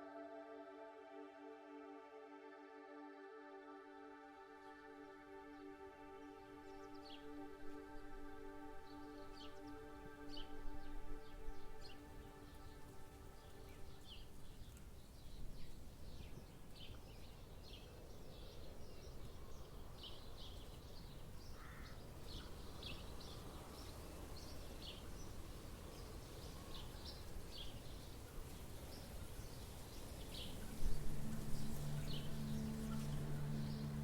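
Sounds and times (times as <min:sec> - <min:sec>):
soft sustained music tones: 0:00.0 - 0:34.0
steady low rumble: 0:30.5 - 0:34.0.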